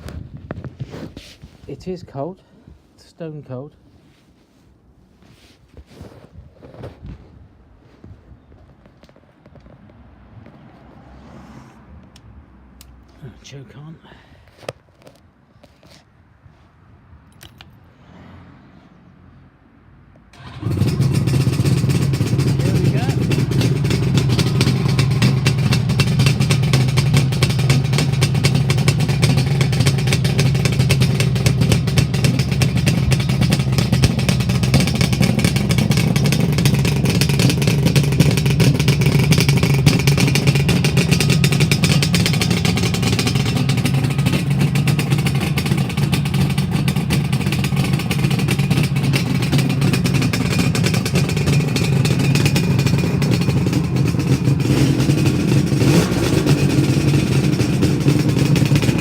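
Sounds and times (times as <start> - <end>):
two-stroke motorcycle engine running: 20.4 - 59.0.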